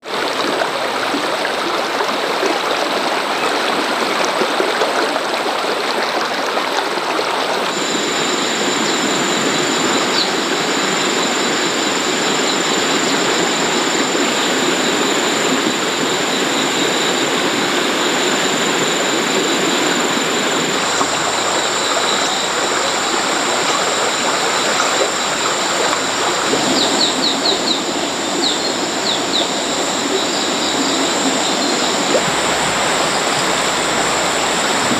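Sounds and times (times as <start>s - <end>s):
rushing water: 0.0s - 34.9s
thin high-pitched whine: 7.7s - 34.9s.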